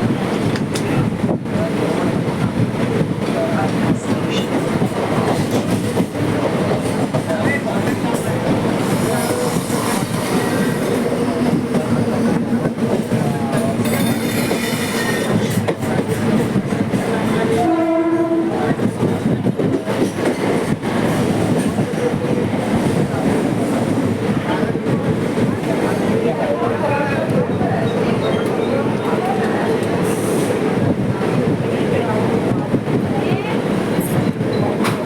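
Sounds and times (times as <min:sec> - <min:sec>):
train rumbling and rattling on track: 0:00.0 - 0:35.0
train horn: 0:17.5 - 0:18.8.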